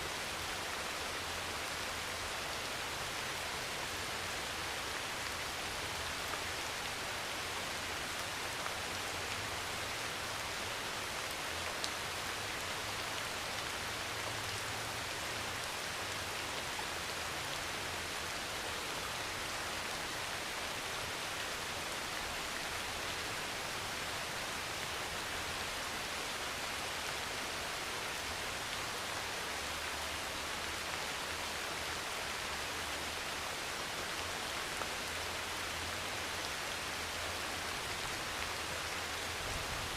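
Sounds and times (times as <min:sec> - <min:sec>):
heavy rain on a metal roof: 0:00.0 - 0:39.9.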